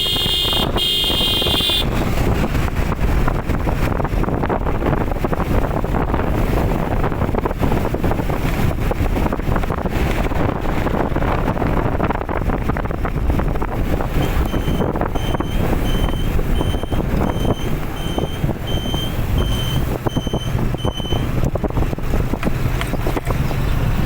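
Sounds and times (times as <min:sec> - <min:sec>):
vehicle horn: 0:00.0 - 0:02.0
road traffic noise: 0:00.0 - 0:24.0
wind buffeting microphone: 0:00.0 - 0:24.0.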